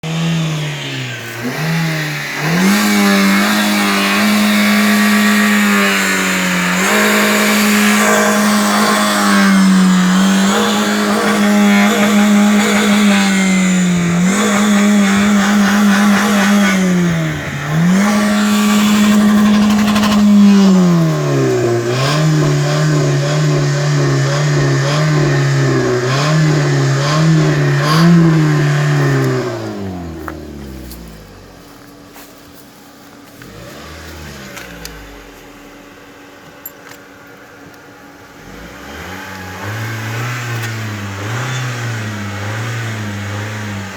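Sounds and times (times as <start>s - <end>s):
car engine revving: 0.0s - 32.2s, 33.3s - 43.9s.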